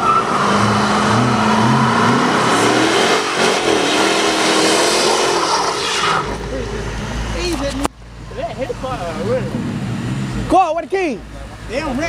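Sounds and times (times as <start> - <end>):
car engine revving hard: 0.0 - 7.5, 8.9 - 10.6.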